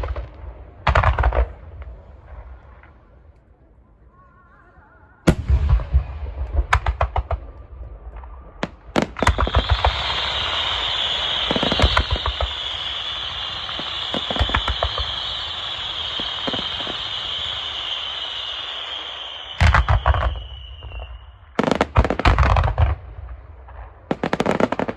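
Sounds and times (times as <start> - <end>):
sharp fireworks bangs: 0.0 - 3.0, 5.3 - 24.9
fireworks booming: 0.0 - 3.2, 5.3 - 24.9
fireworks crackling: 5.3 - 24.9.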